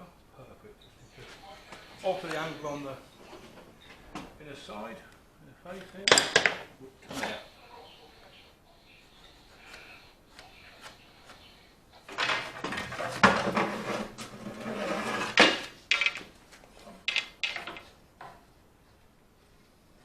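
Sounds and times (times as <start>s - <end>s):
wood rubbing and scraping: 9.4s - 18.0s.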